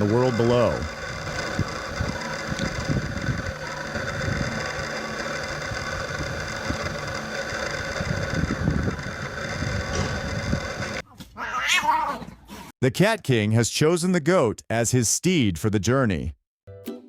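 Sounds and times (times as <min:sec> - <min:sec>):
wind buffeting microphone: 0:00.0 - 0:04.7, 0:05.7 - 0:11.0
outdoor background rumble: 0:00.0 - 0:12.5.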